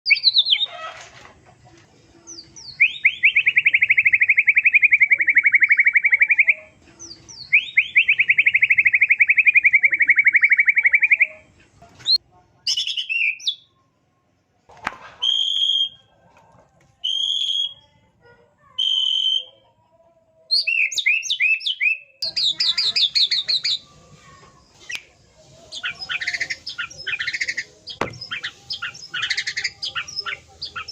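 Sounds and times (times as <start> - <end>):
songbird singing trills and whistles: 0.1 - 0.8, 2.3 - 13.8, 17.0 - 18.0, 18.8 - 19.6, 20.5 - 30.9.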